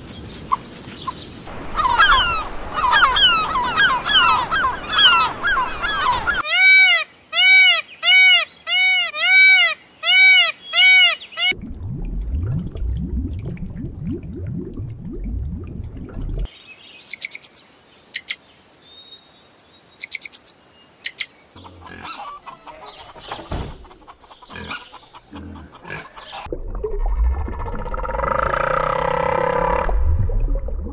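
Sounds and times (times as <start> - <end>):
peacock calls: 1.6 - 11.6, 20.0 - 26.5
low rumble: 11.6 - 16.5, 26.5 - 28.9, 29.6 - 30.9
high bird chirps: 17.0 - 18.4, 20.0 - 21.4.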